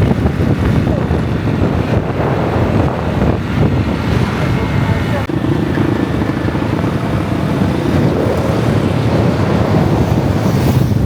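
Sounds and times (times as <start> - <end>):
motorbike engine and road rumble: 0.0 - 11.0
wind buffeting microphone: 0.0 - 11.0.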